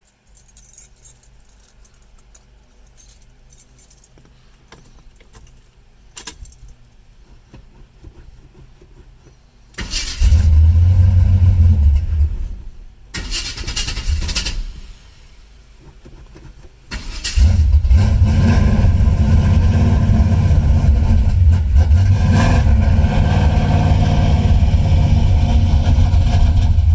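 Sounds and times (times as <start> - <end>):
keys jingling: 0.1 - 6.9
car engine starting: 9.8 - 26.9.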